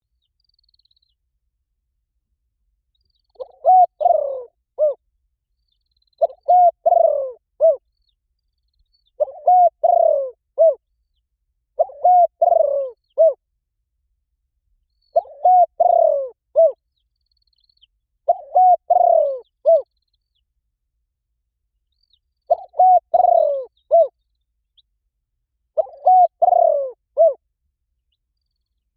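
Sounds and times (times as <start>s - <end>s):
dove cooing: 3.3s - 5.0s, 6.2s - 7.8s, 9.2s - 10.8s, 11.8s - 13.4s, 15.1s - 16.8s, 18.3s - 19.9s, 22.5s - 24.1s, 25.8s - 27.4s.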